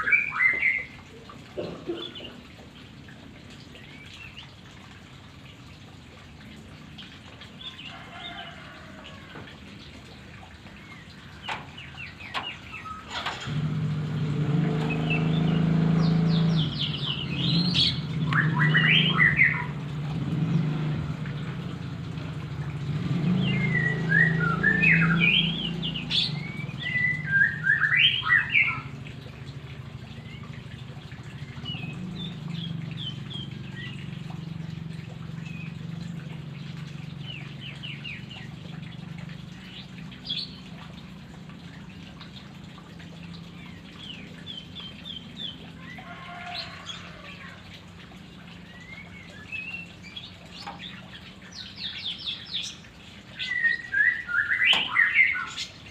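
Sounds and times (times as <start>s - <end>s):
bird singing whistled phrases: 0.0s - 1.0s, 23.5s - 28.9s, 53.4s - 55.7s.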